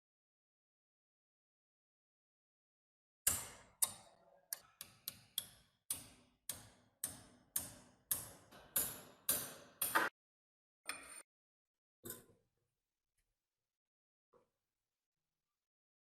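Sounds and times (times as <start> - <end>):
tool tapping on metal: 3.3 - 10.1.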